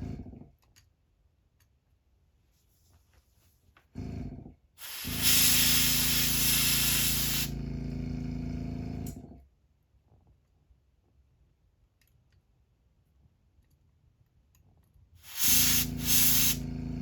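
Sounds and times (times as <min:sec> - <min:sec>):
airbrush spraying hiss: 0:04.8 - 0:07.6, 0:15.2 - 0:16.6
air compressor humming: 0:04.8 - 0:09.2, 0:15.2 - 0:17.0.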